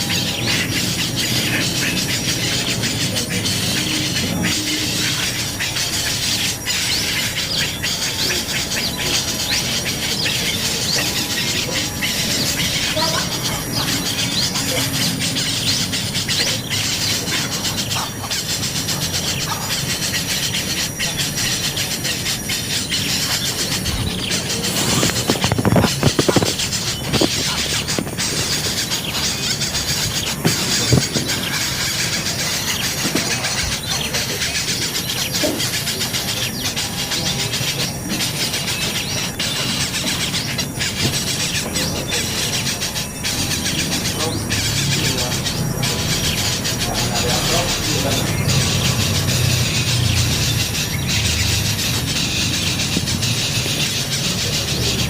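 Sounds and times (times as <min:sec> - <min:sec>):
baby birds cheeping: 0:00.0 - 0:55.0.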